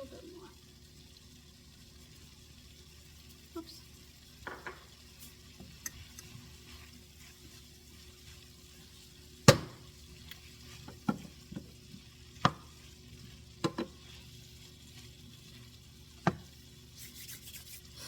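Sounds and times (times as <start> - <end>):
faint sizzle: 0.0 - 18.0
utensil knocking against a pan: 4.4 - 4.9, 9.5 - 9.8, 12.4 - 12.7, 13.6 - 14.0.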